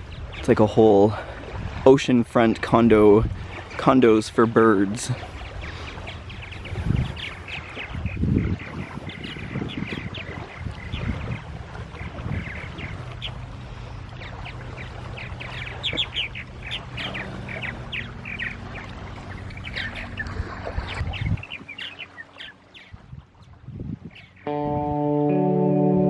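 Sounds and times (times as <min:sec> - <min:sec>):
small birds chirping: 0:03.2 - 0:24.6
low steady drone: 0:13.0 - 0:21.1, 0:24.5 - 0:26.0.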